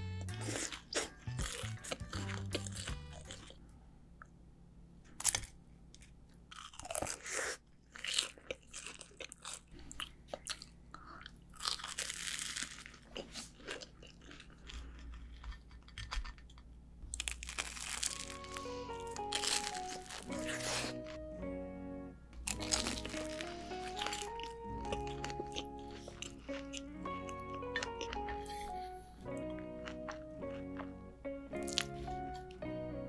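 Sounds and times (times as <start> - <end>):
light background tune: 0.0 - 3.6, 17.3 - 33.0
crunching fried crust: 0.3 - 3.6, 5.1 - 21.2, 22.4 - 28.7.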